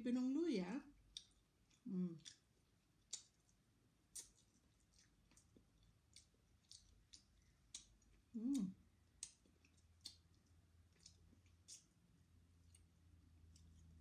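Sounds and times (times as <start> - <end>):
chewing clicks: 1.0 - 2.4, 3.0 - 12.0
wet lip smacks: 1.1 - 2.4, 3.1 - 10.4, 11.0 - 11.9
person humming: 8.4 - 8.8.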